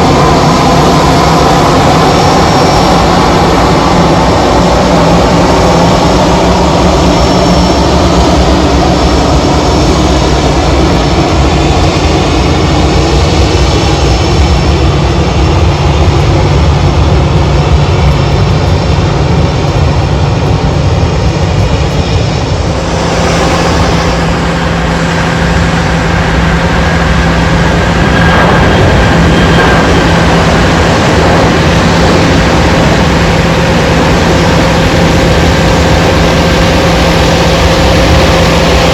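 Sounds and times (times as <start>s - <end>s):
jet engines running: 0.0s - 38.9s
steady hum: 14.7s - 38.9s.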